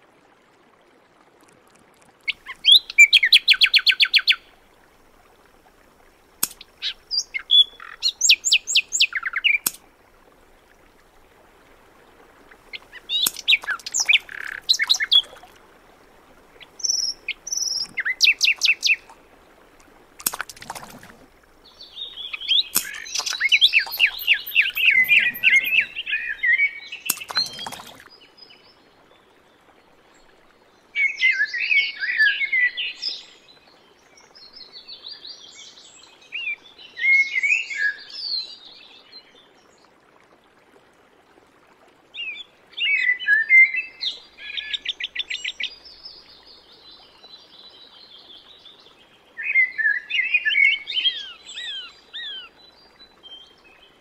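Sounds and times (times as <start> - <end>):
small birds chirping and trilling: 6.4 - 9.8, 12.7 - 15.5, 16.6 - 19.2, 20.5 - 28.7, 42.3 - 54.0.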